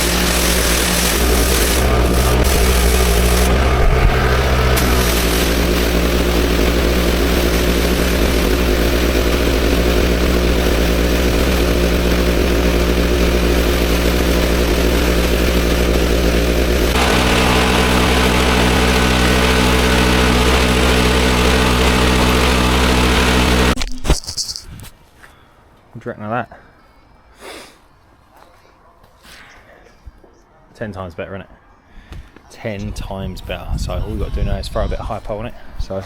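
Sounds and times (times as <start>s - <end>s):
water spray hissing: 0.0s - 12.3s
pressure washer engine running: 0.0s - 23.8s.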